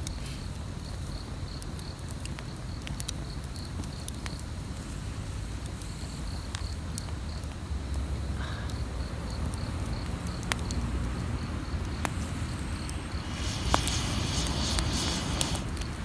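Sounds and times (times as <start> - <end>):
campfire crackling and popping: 10.2 - 16.0
insect chirping: 11.3 - 15.8
steady low rumble: 11.8 - 16.0.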